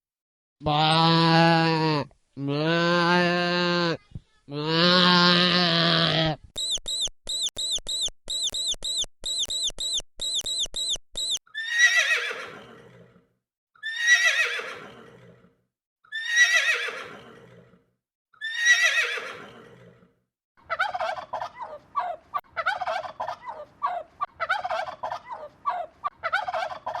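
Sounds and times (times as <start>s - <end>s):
high rapid chirping: 6.6s - 11.4s.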